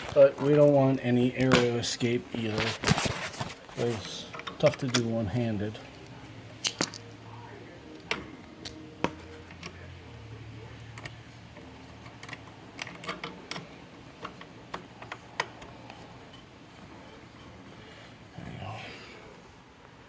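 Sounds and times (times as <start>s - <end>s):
hose fittings clicking and tapping: 5.9s - 7.1s, 10.9s - 16.0s.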